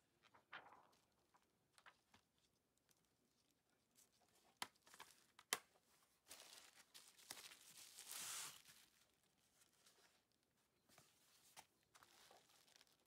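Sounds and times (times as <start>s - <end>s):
paper cards rustling and sliding: 6.3s - 9.0s.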